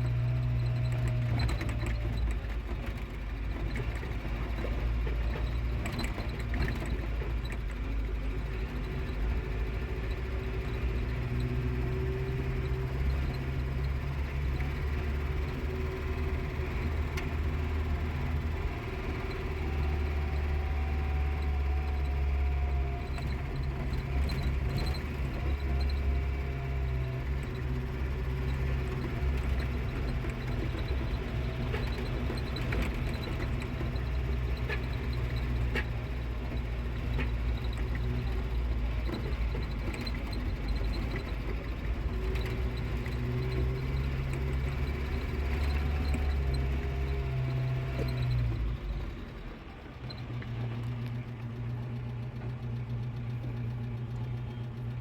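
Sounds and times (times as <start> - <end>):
light clicks and rattles: 0.0 - 9.6
vehicle engine and road rumble: 0.0 - 55.0.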